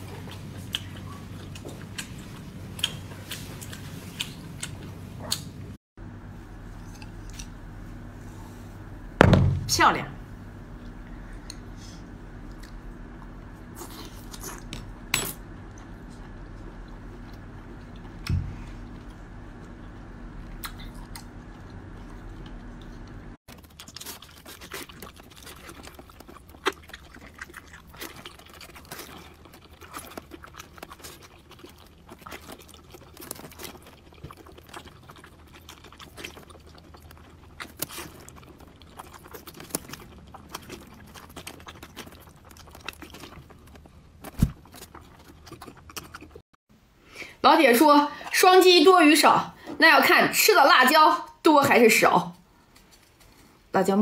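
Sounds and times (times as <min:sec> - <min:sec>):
wet chewing with clicks: 0:00.0 - 0:05.6, 0:06.8 - 0:07.6, 0:12.4 - 0:15.0, 0:15.7 - 0:46.4
steady low hum: 0:00.0 - 0:23.4
knocks: 0:09.2 - 0:09.8.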